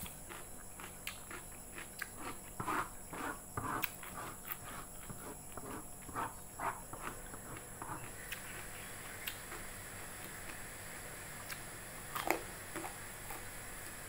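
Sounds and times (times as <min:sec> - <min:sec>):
person chewing: 0:00.0 - 0:05.8, 0:07.0 - 0:09.7.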